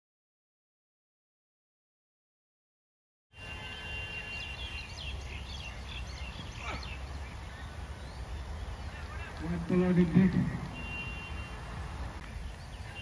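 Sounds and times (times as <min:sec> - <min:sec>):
small birds chirping: 0:03.4 - 0:10.2, 0:10.8 - 0:13.0.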